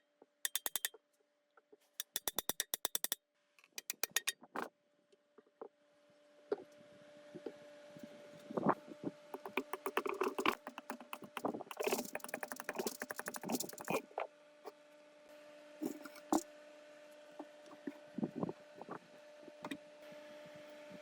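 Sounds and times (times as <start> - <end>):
hand tools clicking on metal: 0.5 - 1.0, 2.0 - 3.2, 3.8 - 4.4, 9.4 - 14.0.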